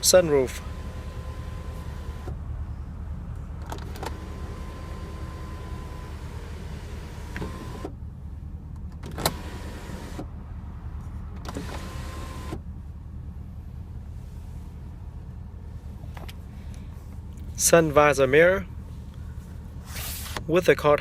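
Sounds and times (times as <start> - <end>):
steady low hum: 0.0 - 21.0
electric sunroof motor running: 0.6 - 2.4, 3.7 - 8.0, 9.1 - 10.3, 11.5 - 12.6
sunroof click: 7.2 - 7.9, 11.4 - 12.6.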